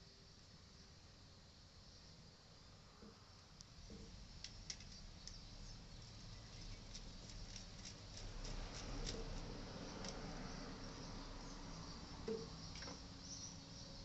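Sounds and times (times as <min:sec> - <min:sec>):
small tools clicking and tapping: 0:03.9 - 0:05.4, 0:06.5 - 0:10.2.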